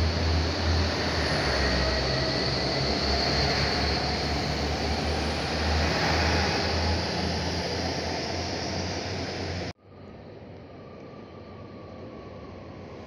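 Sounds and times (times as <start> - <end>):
train wheels rushing on rails: 0.0 - 9.7.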